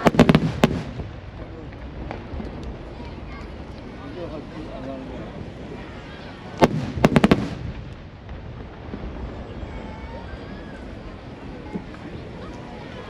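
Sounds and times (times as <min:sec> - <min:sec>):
rumbling echo: 0:00.0 - 0:04.0, 0:06.4 - 0:11.5
fireworks bangs: 0:00.0 - 0:04.4, 0:05.4 - 0:13.0.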